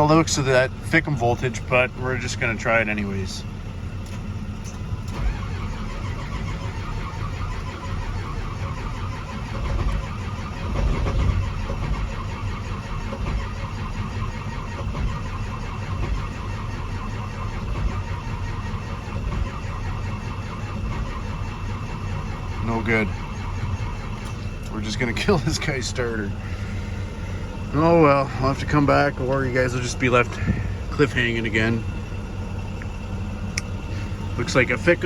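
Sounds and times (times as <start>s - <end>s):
diesel engine cranking on starter: 0.0s - 35.0s.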